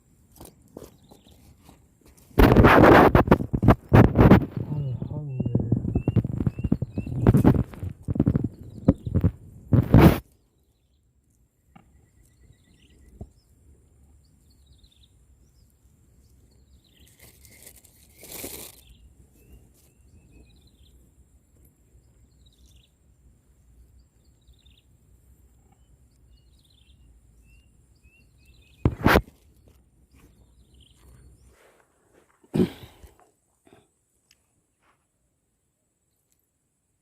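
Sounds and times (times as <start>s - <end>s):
noisy rustle: 0.0s - 10.4s, 15.8s - 22.8s, 28.7s - 33.1s
small birds chirping: 0.4s - 32.0s.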